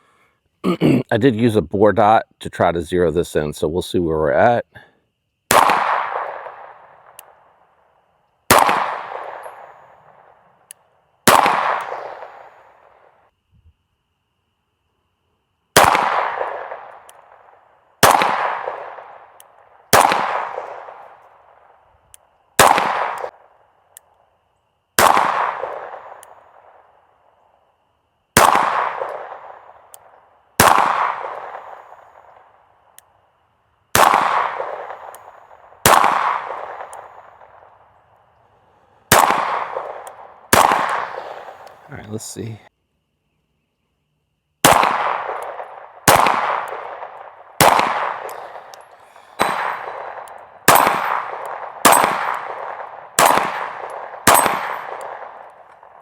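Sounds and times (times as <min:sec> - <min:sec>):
pistol shots with echo: 0:05.5 - 0:07.4, 0:08.5 - 0:10.3, 0:11.2 - 0:12.9, 0:15.8 - 0:17.4, 0:18.0 - 0:21.6, 0:22.6 - 0:23.3, 0:25.0 - 0:26.8, 0:28.4 - 0:32.4, 0:33.9 - 0:37.7, 0:39.1 - 0:42.5, 0:44.6 - 0:56.0.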